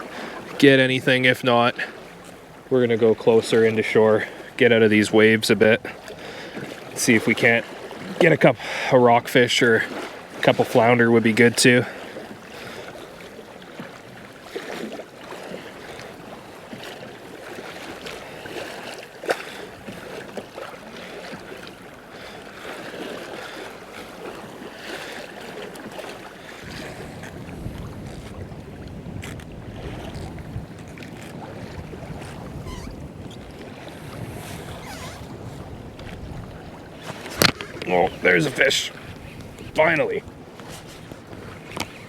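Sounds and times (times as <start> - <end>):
waves splashing against hull: 0.0 - 42.0
wind on microphone: 26.6 - 42.0.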